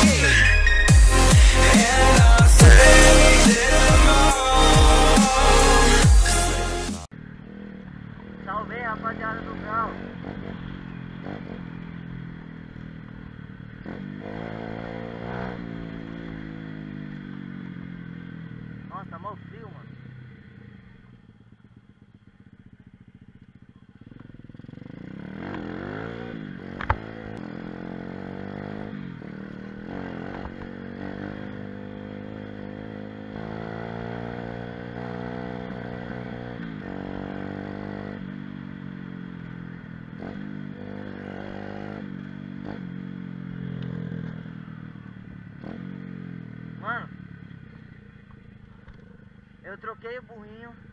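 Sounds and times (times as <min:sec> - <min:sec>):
small motorbike engine revving: 0:08.7 - 0:47.8
sharp click: 0:26.8 - 0:27.1.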